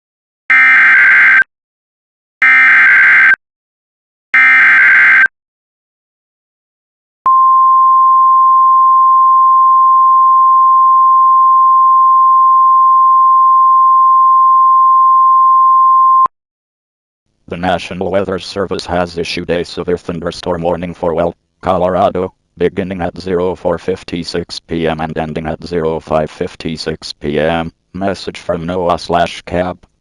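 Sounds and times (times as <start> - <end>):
long steady high alarm tone: 0.5 - 1.4, 2.4 - 3.4, 4.4 - 5.3.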